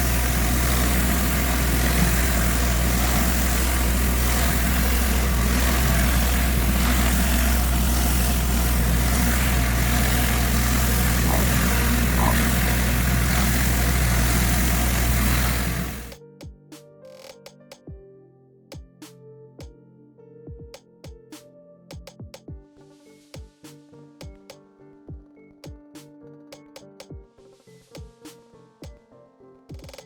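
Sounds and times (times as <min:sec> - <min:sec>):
high-pressure water spray hiss: 0:00.0 - 0:16.2
pressure washer engine running: 0:00.0 - 0:16.2.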